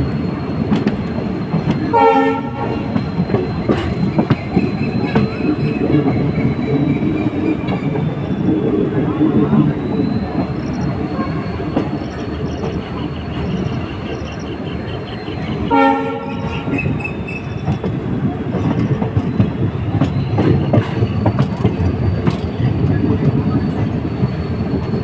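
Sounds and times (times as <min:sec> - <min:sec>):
diesel train rumbling: 0:00.0 - 0:25.0
wheels rattling on rails: 0:00.0 - 0:25.0
train horn: 0:01.8 - 0:03.0, 0:11.1 - 0:11.8, 0:14.7 - 0:16.9.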